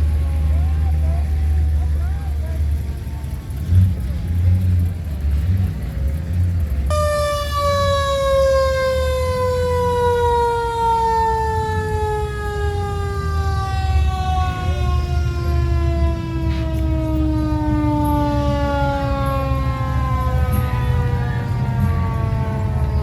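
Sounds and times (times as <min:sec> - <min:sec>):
low engine rumble: 0:00.0 - 0:23.0
siren winding down: 0:06.9 - 0:23.0.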